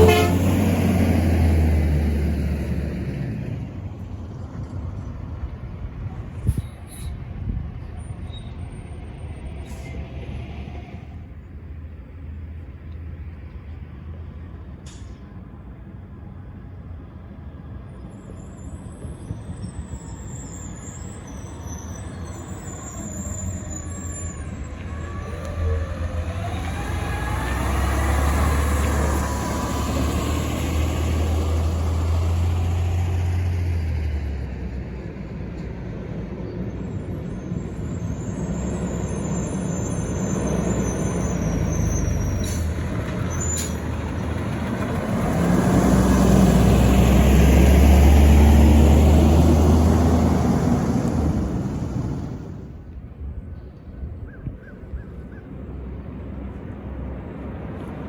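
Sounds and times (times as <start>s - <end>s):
garbage truck engine drone: 0.0s - 6.3s, 19.9s - 52.9s
heavy vehicle engine: 0.0s - 54.2s, 55.5s - 58.0s.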